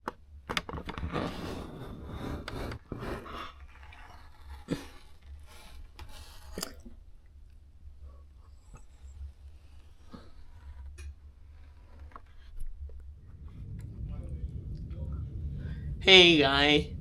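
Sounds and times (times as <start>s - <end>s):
scraping and rubbing handling noise: 0.6s - 7.0s, 8.4s - 13.8s.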